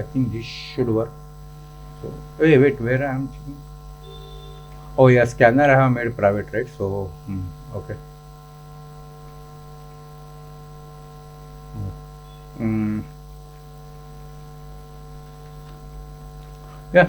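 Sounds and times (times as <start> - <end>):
electrical mains hum: 0.0 - 17.0
man's voice murmuring: 2.0 - 3.6, 5.0 - 8.0, 11.8 - 12.0, 12.6 - 13.2.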